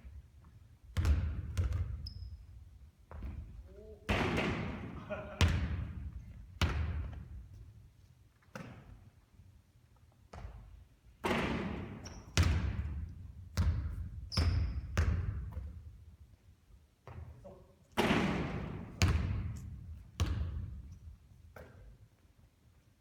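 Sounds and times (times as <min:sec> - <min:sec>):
basketball bouncing on hard floor: 0:00.4 - 0:02.3, 0:03.1 - 0:04.8, 0:05.4 - 0:07.5, 0:10.3 - 0:15.8, 0:17.0 - 0:17.3, 0:18.0 - 0:21.0.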